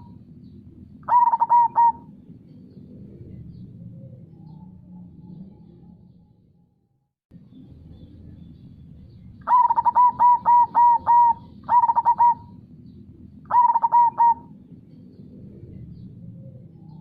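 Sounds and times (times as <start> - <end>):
dove cooing: 0.0 - 0.2, 1.0 - 2.3, 9.4 - 12.6, 13.4 - 17.0.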